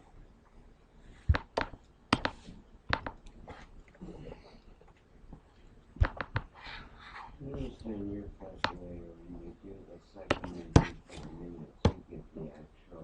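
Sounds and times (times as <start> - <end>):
sharp irregular taps and clicks: 1.3 - 3.4, 6.0 - 6.5, 8.6 - 8.9, 10.3 - 11.0.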